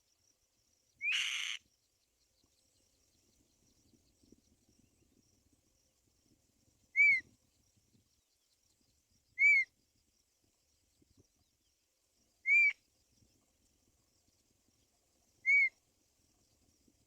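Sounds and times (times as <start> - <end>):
bird whistled calls: 12.5 - 12.7.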